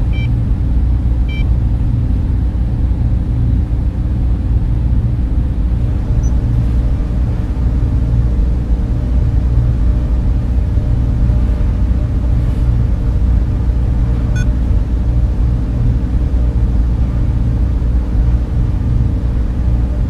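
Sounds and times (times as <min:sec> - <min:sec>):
cooling fans humming: 0:00.0 - 0:20.0.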